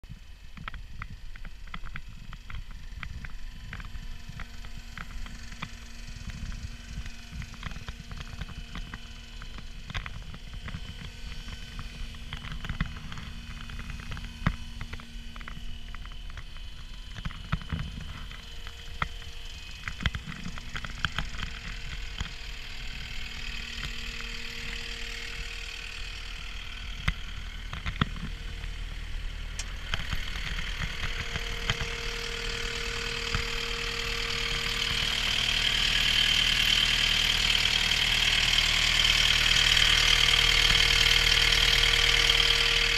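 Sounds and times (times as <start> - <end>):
diesel engine running: 0.1 - 42.9.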